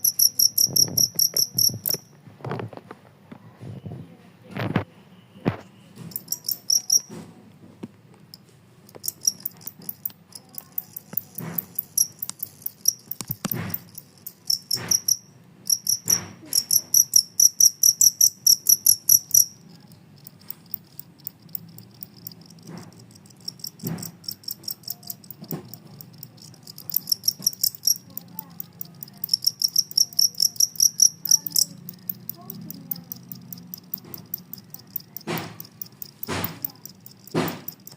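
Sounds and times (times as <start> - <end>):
cricket chirping: 0.0 - 2.2, 6.1 - 7.1, 8.3 - 37.9
scattered knocks: 13.0 - 15.2, 22.2 - 26.1, 33.2 - 37.9.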